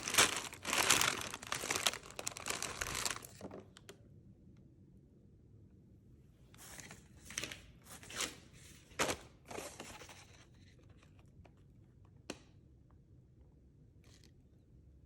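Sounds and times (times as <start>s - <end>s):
packaging rustling and crinkling: 0.0s - 3.9s.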